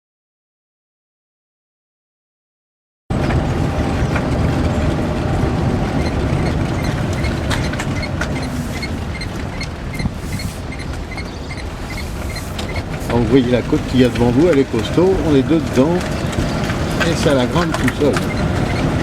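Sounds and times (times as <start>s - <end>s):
rattles and clicks: 3.1s - 19.0s
road and wind noise: 3.1s - 19.0s.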